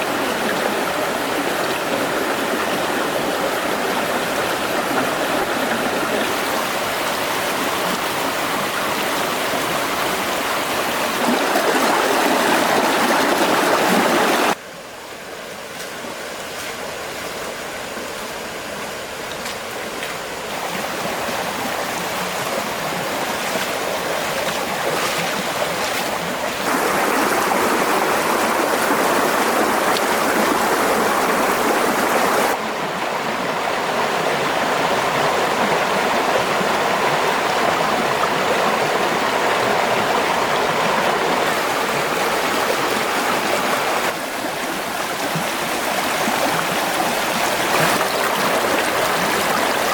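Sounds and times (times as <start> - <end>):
stream water rushing: 0.0 - 49.9.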